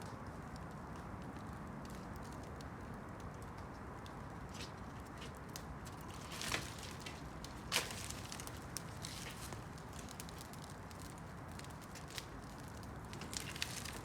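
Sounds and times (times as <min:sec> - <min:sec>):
campfire crackling: 0:00.2 - 0:14.0
fire pops: 0:03.5 - 0:14.0.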